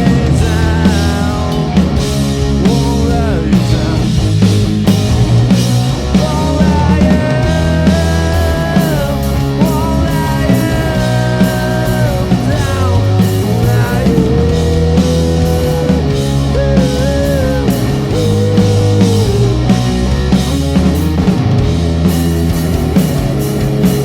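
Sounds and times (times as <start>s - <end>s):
live rock band playing: 0.0s - 24.0s
sliding lead guitar melody: 0.0s - 24.0s.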